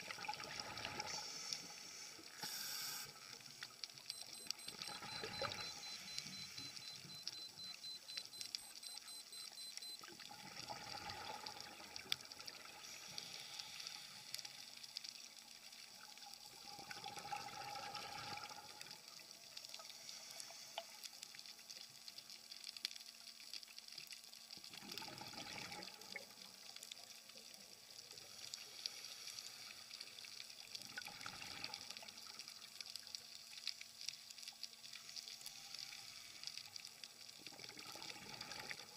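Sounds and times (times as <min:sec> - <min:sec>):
underwater hiss: 0:00.8 - 0:03.4, 0:12.8 - 0:14.6.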